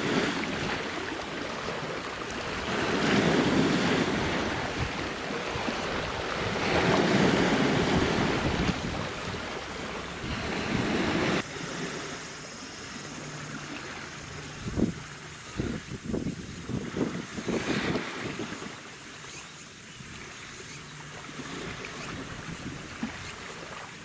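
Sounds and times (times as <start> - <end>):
sea water washing: 0.0 - 24.0
wind gusting on microphone: 2.4 - 12.3, 14.0 - 18.8, 21.4 - 23.5.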